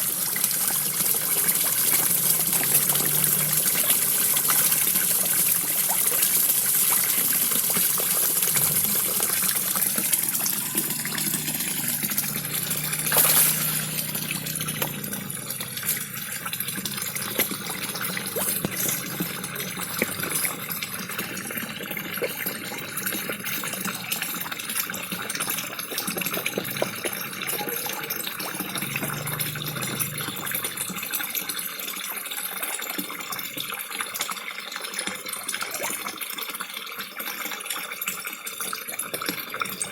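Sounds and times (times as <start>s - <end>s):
small waterfall splashing: 0.0s - 22.4s
fish popping and slurping at surface: 0.0s - 23.2s
loud splash: 12.8s - 14.4s.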